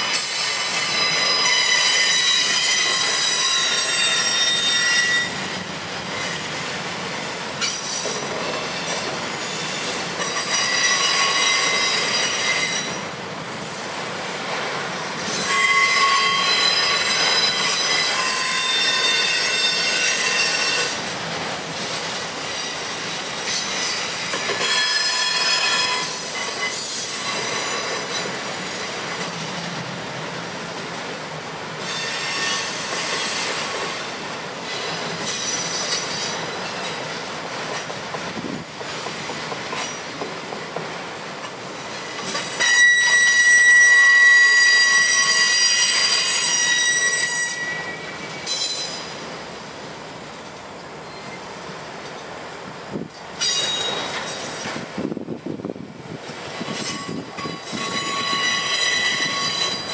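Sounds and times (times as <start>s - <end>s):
train wheels squealing: 0.0s - 6.8s, 7.6s - 13.9s, 15.0s - 21.2s, 22.4s - 29.6s, 31.8s - 37.2s, 39.1s - 40.3s, 41.8s - 49.2s, 51.0s - 51.6s, 53.4s - 54.8s, 56.5s - 59.9s
train rolling rumble: 0.0s - 43.2s, 44.2s - 59.9s.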